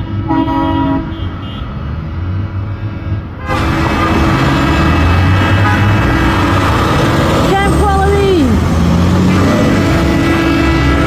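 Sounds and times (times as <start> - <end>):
truck air horns: 0.0 - 1.7, 2.7 - 7.0, 9.2 - 11.0
truck engines rumbling: 0.0 - 11.0.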